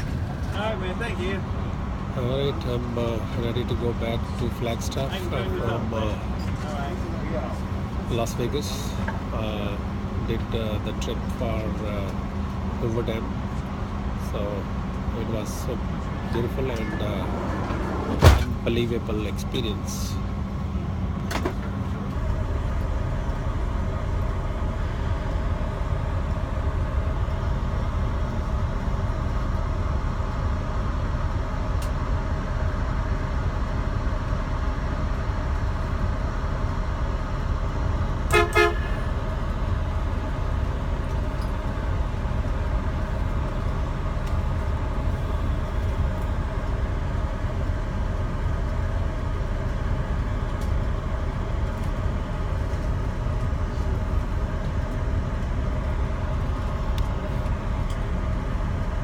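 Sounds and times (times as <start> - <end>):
vehicle road and engine noise: 0.0 - 59.0
short horn toot: 38.3 - 39.1.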